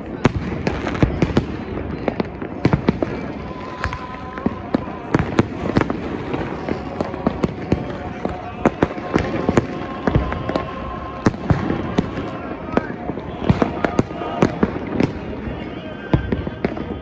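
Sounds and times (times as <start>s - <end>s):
fireworks bangs and cracks: 0.0s - 17.0s
rumble of distant explosions: 0.0s - 17.0s.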